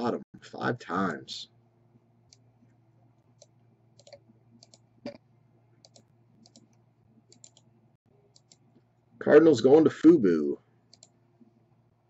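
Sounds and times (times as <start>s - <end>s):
low steady hum: 0.0s - 12.0s
computer mouse clicks: 3.4s - 5.2s, 5.8s - 7.7s, 8.3s - 8.7s, 10.9s - 11.2s.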